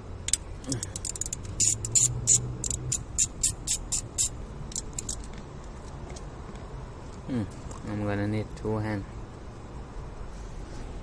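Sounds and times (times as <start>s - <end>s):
ratchet wrench clicking: 0.2s - 5.3s.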